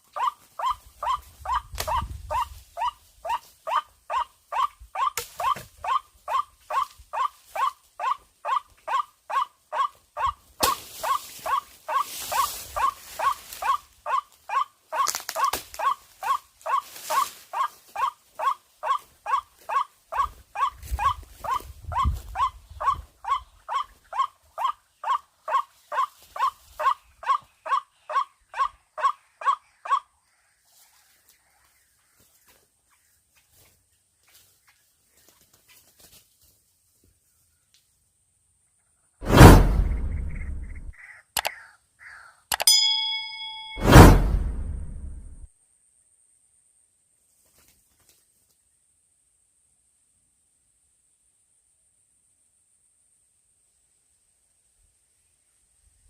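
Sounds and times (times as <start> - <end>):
hiss and low rumble: 39.2 - 40.9, 43.8 - 45.5.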